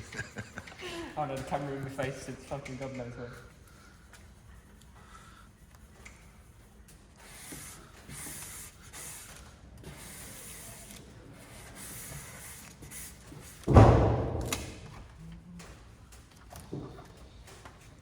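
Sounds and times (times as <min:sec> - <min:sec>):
scraping strokes on surface: 0:03.7 - 0:13.6.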